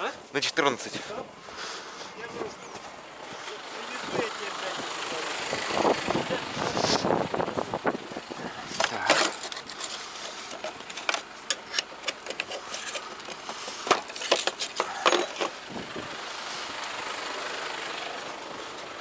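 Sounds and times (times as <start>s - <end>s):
metal wrenches clinking: 8.4s - 15.6s.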